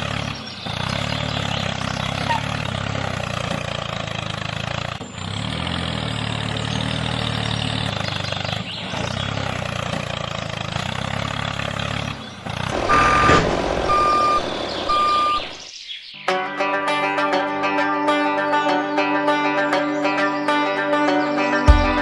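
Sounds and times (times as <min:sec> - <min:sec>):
engine-like hum: 0:00.0 - 0:15.8
reversing alarm beeps: 0:12.8 - 0:15.7
music: 0:16.2 - 0:22.0.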